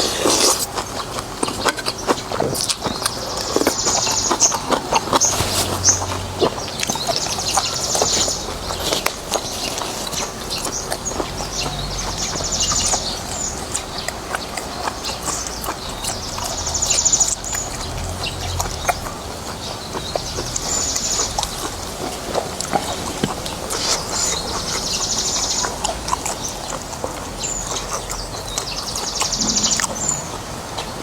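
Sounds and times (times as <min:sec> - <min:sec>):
eating mouth noises: 0:00.0 - 0:31.0.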